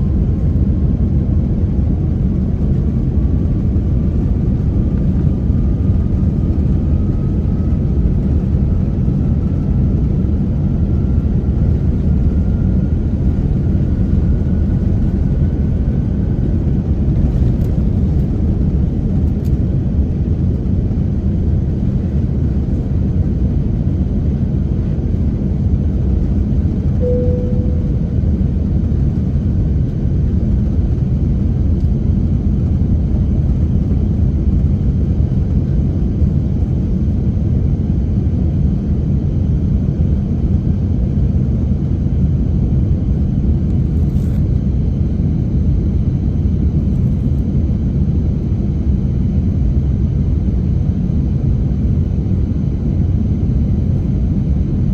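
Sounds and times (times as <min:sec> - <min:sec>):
airplane cabin rumble: 0:00.0 - 0:54.9
chime tone: 0:27.0 - 0:28.1.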